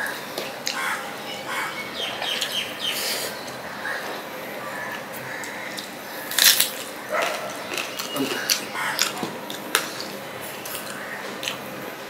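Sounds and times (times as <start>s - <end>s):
chewing and lip-smacking: 5.7s - 11.6s.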